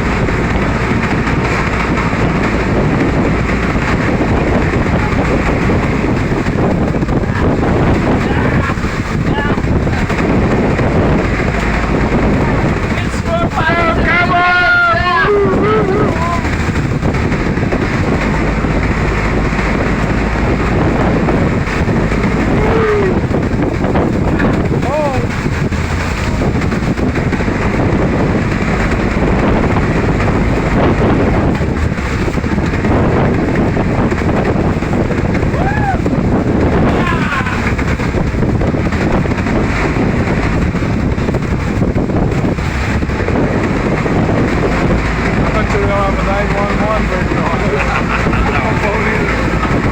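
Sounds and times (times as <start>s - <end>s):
boat engine running: 0.0s - 49.9s
waves in rough water: 0.0s - 49.9s
wind buffeting microphone: 0.0s - 49.9s.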